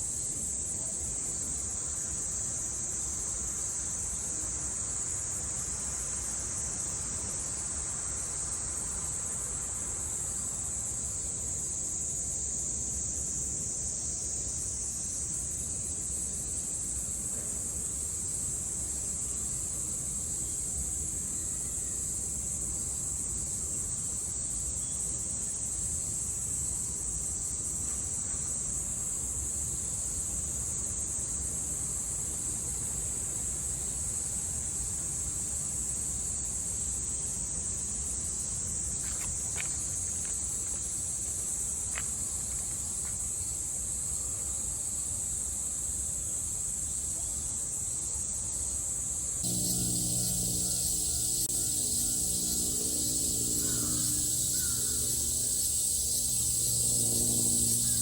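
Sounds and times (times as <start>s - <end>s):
cicadas buzzing: 17.8s - 44.3s, 48.3s - 58.0s.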